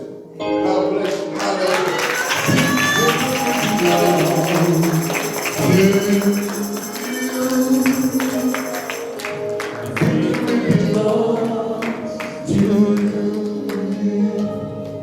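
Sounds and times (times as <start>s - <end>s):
tambourine jingling: 2.1s - 9.2s.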